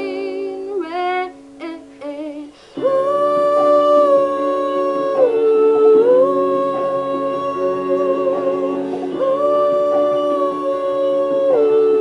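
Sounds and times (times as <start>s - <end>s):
woman singing wordless ooh: 0.0s - 12.0s
sustained instrumental backing: 2.8s - 12.0s.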